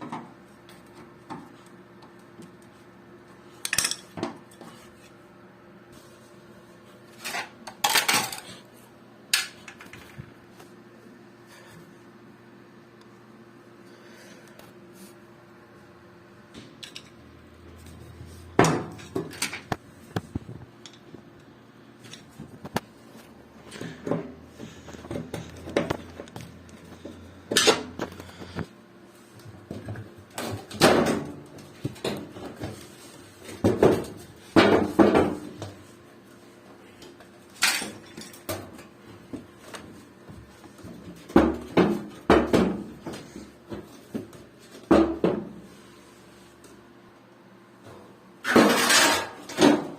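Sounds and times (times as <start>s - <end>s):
metallic clanks and rattles of tools: 37.6s - 38.8s.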